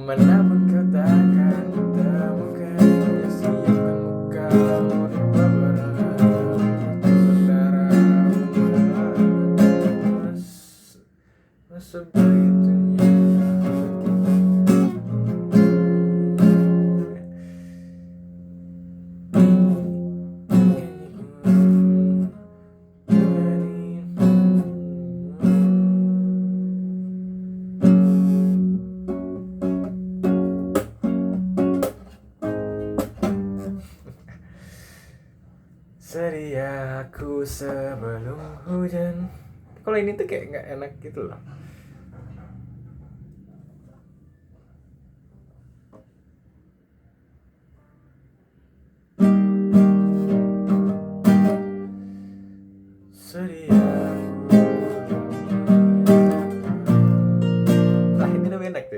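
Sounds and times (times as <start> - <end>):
acoustic guitar strumming chords: 0.0 - 10.7, 11.9 - 34.6, 49.2 - 58.9.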